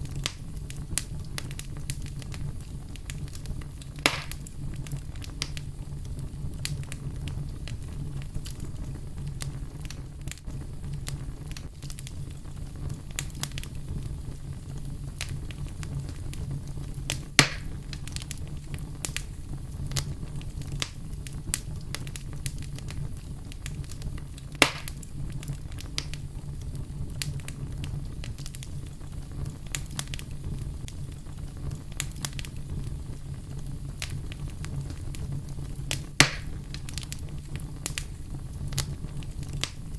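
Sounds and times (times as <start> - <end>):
low rumble of flames: 0.0 - 39.9
wood fire crackling: 0.0 - 39.9
loud sharp pops: 4.0 - 4.5, 17.1 - 18.3, 23.7 - 25.1, 35.9 - 37.2.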